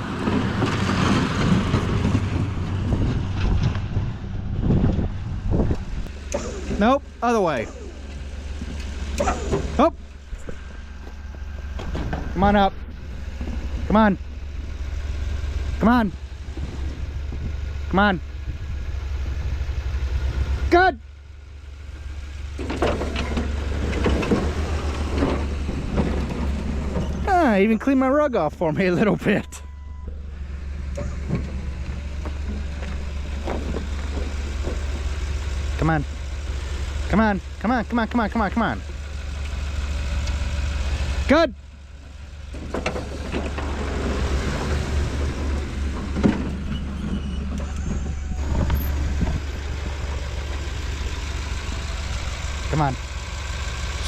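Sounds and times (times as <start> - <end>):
snowplow engine humming: 0.0 - 54.0.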